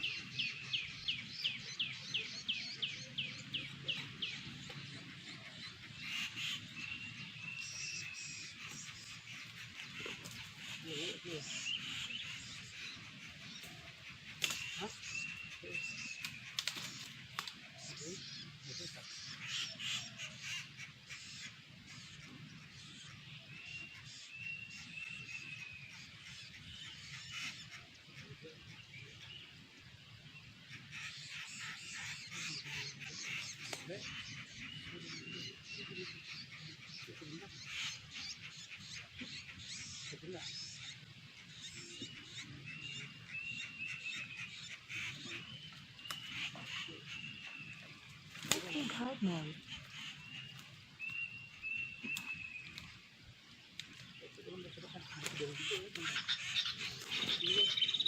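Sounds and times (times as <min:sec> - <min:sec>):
harsh bird chattering: 0:00.0 - 0:23.2, 0:30.7 - 0:52.9, 0:54.1 - 0:58.0
bird whistling calls: 0:41.6 - 0:53.0, 0:55.3 - 0:58.0.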